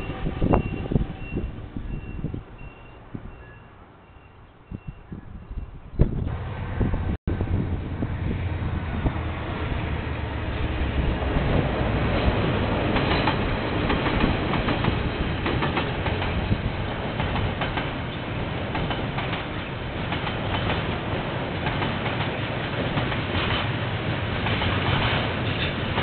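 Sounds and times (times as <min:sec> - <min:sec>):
train wheels rumbling on rails: 0:06.0 - 0:26.0
train clicks and clatter: 0:09.0 - 0:26.0.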